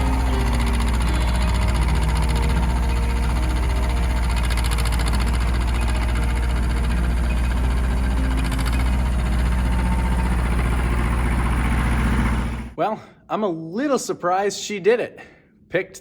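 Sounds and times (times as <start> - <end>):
tractor diesel engine running: 0.0 - 12.8.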